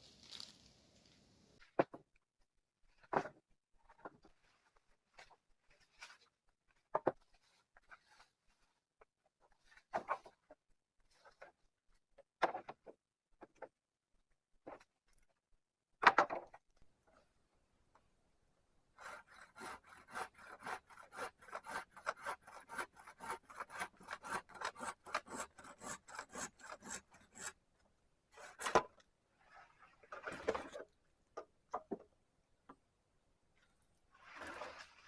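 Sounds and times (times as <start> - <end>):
rustles: 0.0 - 1.6
hand saw cutting wood: 19.0 - 27.6, 28.3 - 28.9.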